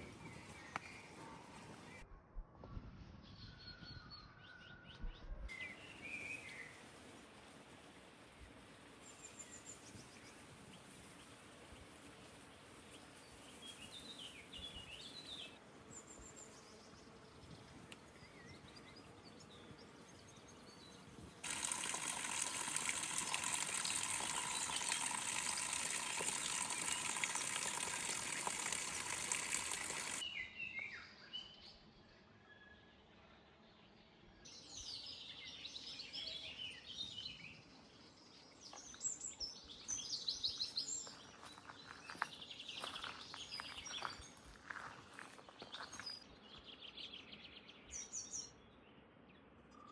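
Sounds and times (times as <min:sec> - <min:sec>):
small birds chirping: 0:09.0 - 0:30.2, 0:38.5 - 0:48.9
running water: 0:21.4 - 0:30.2.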